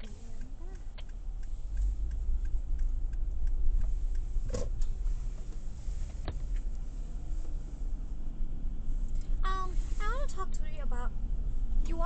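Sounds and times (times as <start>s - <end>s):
faint regular ticking: 0.0s - 5.7s
car engine and road rumble: 0.0s - 12.0s.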